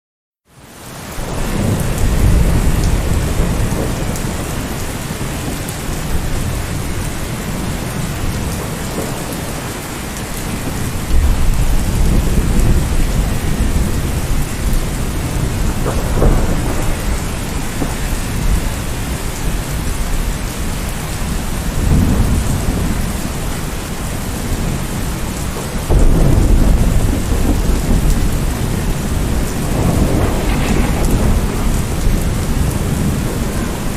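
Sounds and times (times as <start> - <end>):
heavy rain falling: 0.5 - 33.9
thunder rumbling: 1.2 - 33.9.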